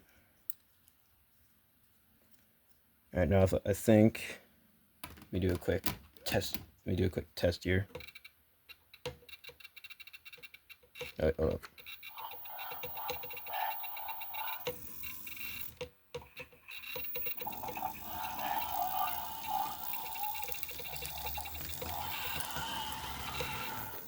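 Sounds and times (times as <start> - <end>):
model locomotive motor whine: 11.8 - 24.0.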